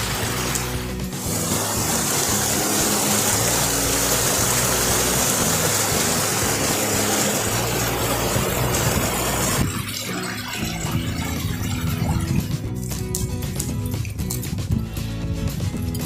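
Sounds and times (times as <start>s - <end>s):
rushing stream water: 0.0s - 12.7s
soft background music: 0.0s - 16.0s.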